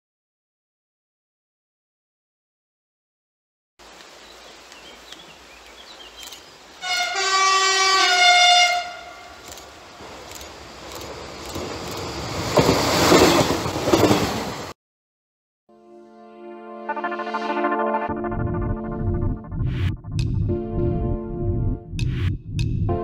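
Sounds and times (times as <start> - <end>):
train horn: 6.8 - 9.4
train wheels rumbling on rails: 9.5 - 14.7.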